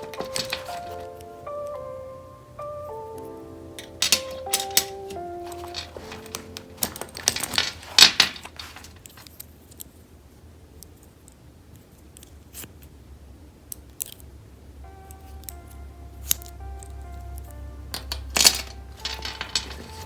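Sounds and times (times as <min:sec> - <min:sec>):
hands rustling and scraping objects: 0:00.0 - 0:01.3, 0:03.8 - 0:10.0, 0:17.9 - 0:20.0
soft background music: 0:00.0 - 0:08.6, 0:14.0 - 0:20.0.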